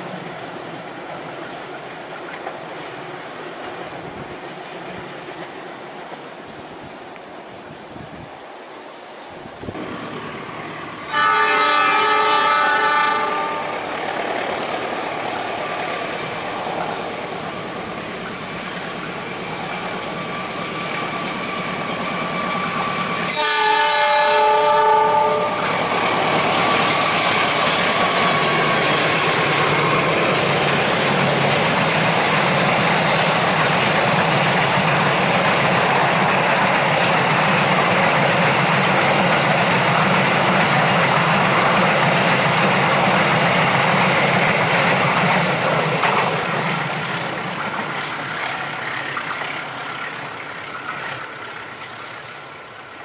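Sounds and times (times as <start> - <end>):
train rumbling past: 0.0 - 53.0
locomotive horn: 11.0 - 14.0, 22.3 - 26.8
locomotive engine working: 13.6 - 23.4.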